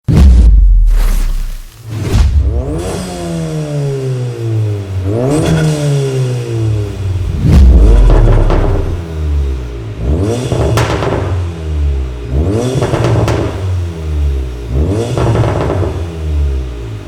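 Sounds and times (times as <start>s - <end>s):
car engine revving: 2.3s - 17.0s
loud low rumble: 7.0s - 9.6s.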